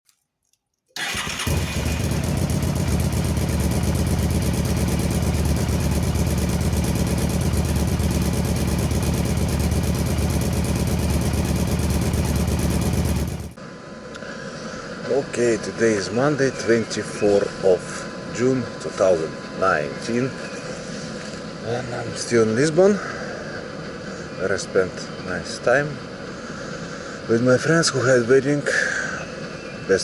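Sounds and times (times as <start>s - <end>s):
motorcycle engine idling: 1.0s - 13.6s.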